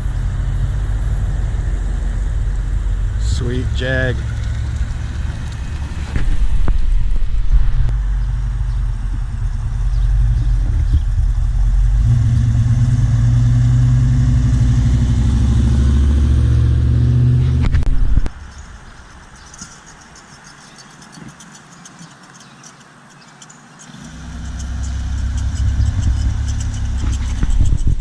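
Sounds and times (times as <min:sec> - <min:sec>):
car engine running: 0:00.0 - 0:18.3, 0:24.0 - 0:28.0.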